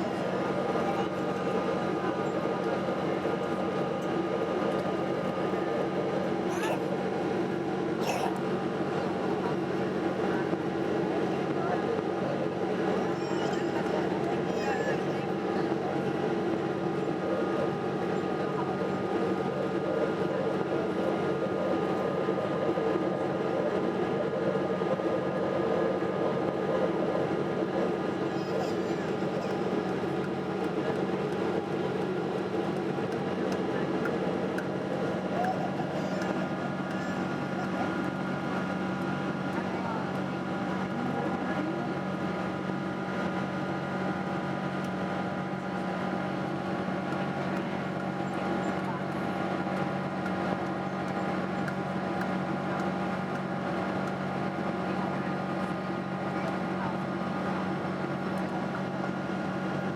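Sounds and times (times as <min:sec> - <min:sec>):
constant hum: 0:00.0 - 0:59.9
jet engines droning: 0:00.0 - 0:59.9.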